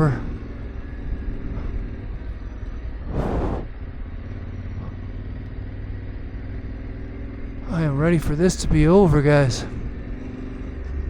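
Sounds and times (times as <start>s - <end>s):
motorcycle engine running: 0.0s - 11.0s
short rushing noise: 3.0s - 3.7s.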